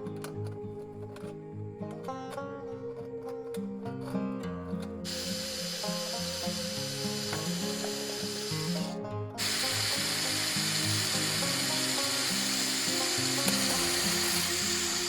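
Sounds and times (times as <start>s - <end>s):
background music: 0.0s - 15.0s
electric drill running: 9.4s - 15.0s.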